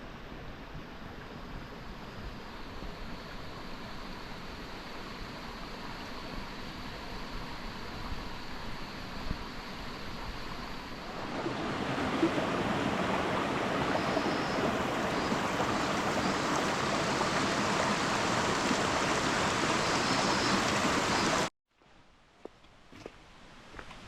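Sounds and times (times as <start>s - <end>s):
flowing water rushing: 11.0s - 21.5s.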